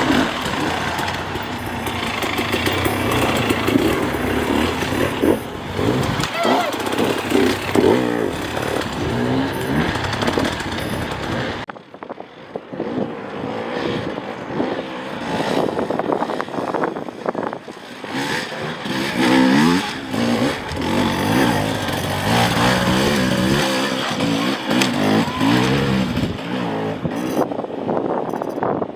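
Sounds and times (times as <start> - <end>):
rapid knocks and clatter: 0.0 - 11.7
motorcycle engines revving: 0.0 - 28.7.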